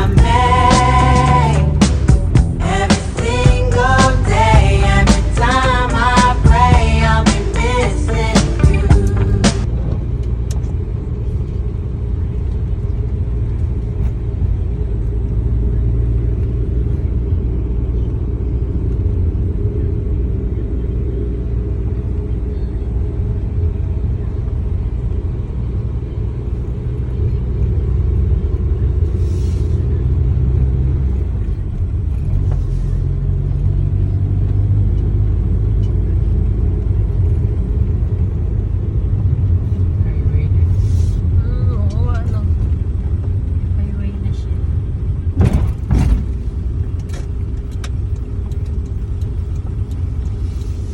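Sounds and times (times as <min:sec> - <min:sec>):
car driving rumble: 0:00.0 - 0:50.9
brief hisses: 0:29.1 - 0:29.9, 0:40.7 - 0:41.3.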